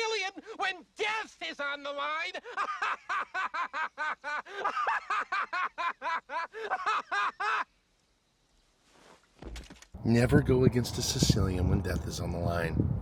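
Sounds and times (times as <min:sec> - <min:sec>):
man laughing: 0:02.3 - 0:07.7.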